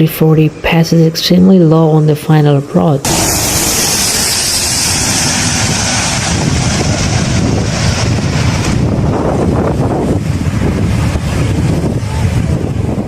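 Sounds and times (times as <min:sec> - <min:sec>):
jet passing low overhead: 0:03.0 - 0:13.0
wind buffeting microphone: 0:03.0 - 0:13.0.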